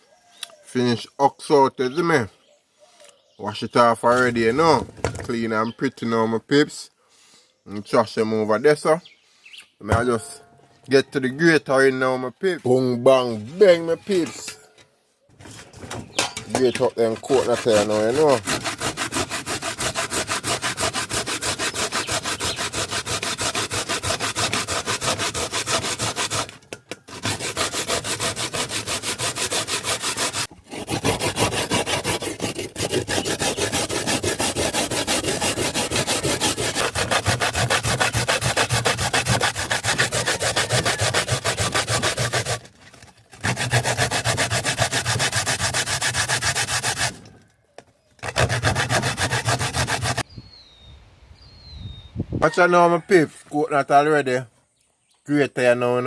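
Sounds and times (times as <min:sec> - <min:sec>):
coconut grated by hand: 0:16.5 - 0:42.7, 0:43.3 - 0:47.2, 0:48.2 - 0:50.2.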